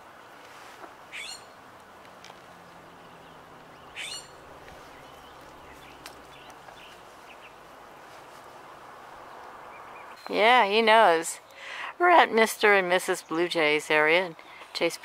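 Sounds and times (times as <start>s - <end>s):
steady outdoor hiss: 0.0s - 15.0s
bird sweeping calls: 1.1s - 1.6s, 3.8s - 7.6s.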